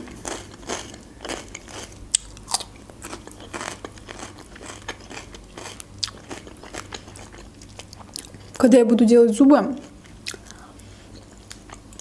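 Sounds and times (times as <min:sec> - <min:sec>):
crisp crunching and wet chewing: 0:00.2 - 0:08.6.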